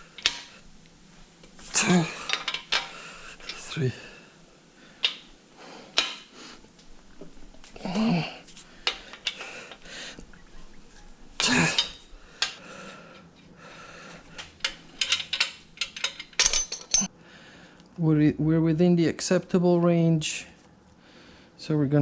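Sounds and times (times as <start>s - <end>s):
metal tools clinking: 1.5s - 4.0s, 7.6s - 10.0s, 10.6s - 13.5s, 14.1s - 17.1s.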